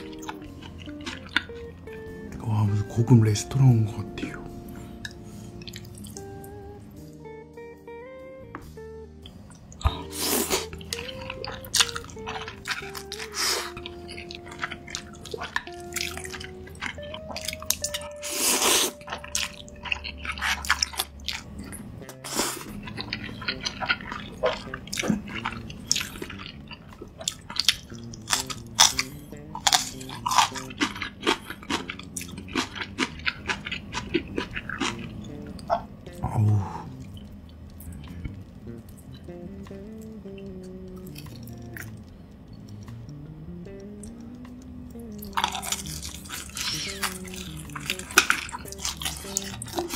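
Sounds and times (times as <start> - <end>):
wet chewing and crunching: 0.0 - 2.1, 5.0 - 6.6, 9.2 - 49.9
soft background music: 0.0 - 49.9
noodle slurping: 9.9 - 19.3, 45.8 - 49.9.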